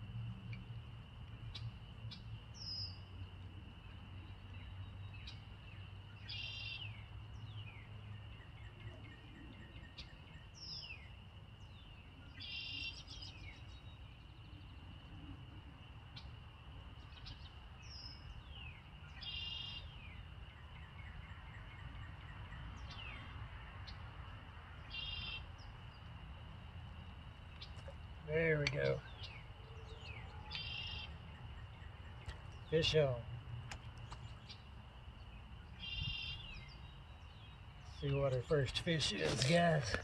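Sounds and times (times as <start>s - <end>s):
songbirds singing: 0.0s - 40.0s.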